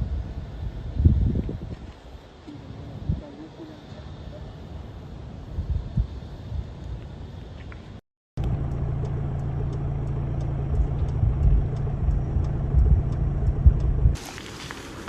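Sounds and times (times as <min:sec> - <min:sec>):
vehicle motor rumble: 0:08.4 - 0:15.0.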